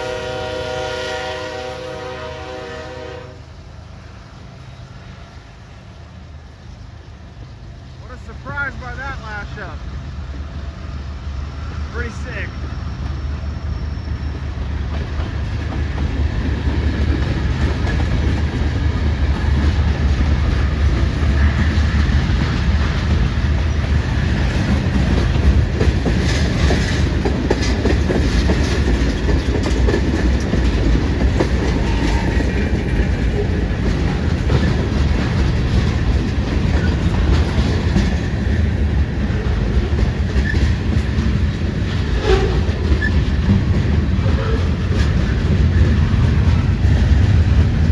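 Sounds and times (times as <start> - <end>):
freight train rumbling past: 0.0 - 47.9
wheels clacking over rail joints: 14.1 - 47.9.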